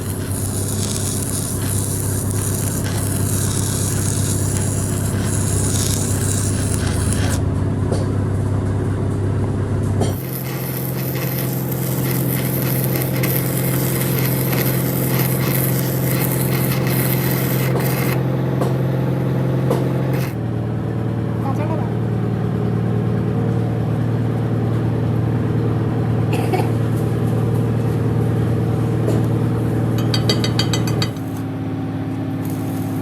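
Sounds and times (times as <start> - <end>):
machine droning: 0.0 - 20.6.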